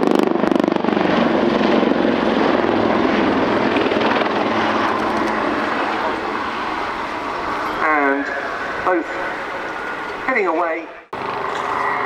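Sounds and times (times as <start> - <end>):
helicopter rotor chop: 0.0 - 10.6, 11.2 - 12.0
turbine noise: 0.0 - 12.0.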